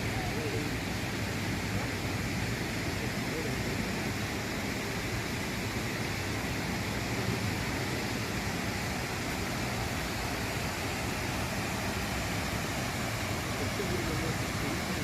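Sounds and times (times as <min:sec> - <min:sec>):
water pouring over dam: 0:00.0 - 0:15.0.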